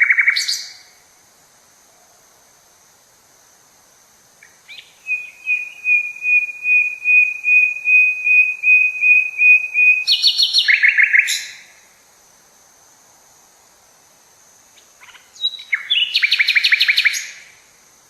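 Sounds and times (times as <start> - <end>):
songbird singing: 0.0 - 1.1, 4.3 - 12.0, 14.6 - 18.0.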